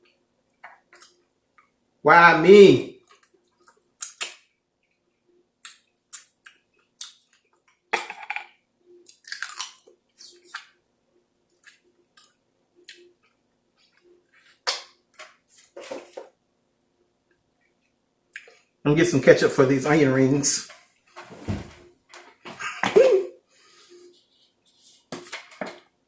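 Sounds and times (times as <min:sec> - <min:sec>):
person chewing food: 0:03.0 - 0:07.8, 0:08.9 - 0:10.8, 0:11.4 - 0:15.8.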